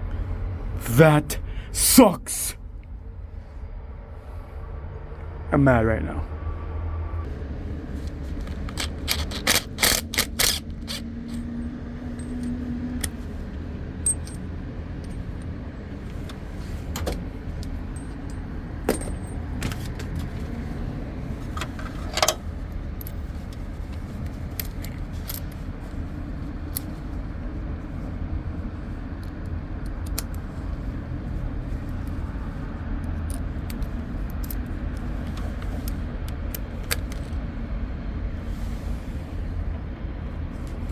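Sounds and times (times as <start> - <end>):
steady low rumble: 0.0 - 40.9
metallic clicks of hand tools: 8.7 - 11.5.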